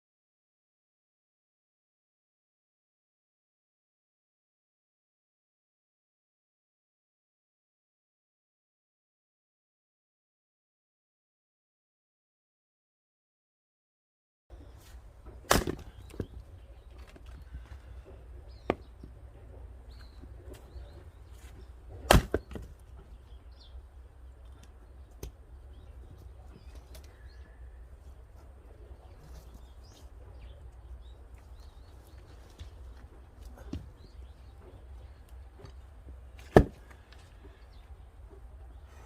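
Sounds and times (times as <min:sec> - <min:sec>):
axe striking firewood: 0:15.2 - 0:16.4, 0:18.6 - 0:19.0, 0:21.5 - 0:22.8, 0:36.4 - 0:37.2.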